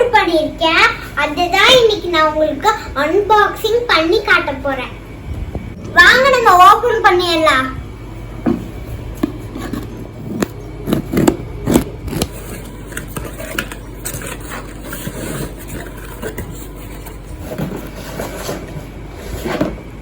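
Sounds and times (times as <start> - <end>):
packaging scraping and rustling: 9.3 - 19.9.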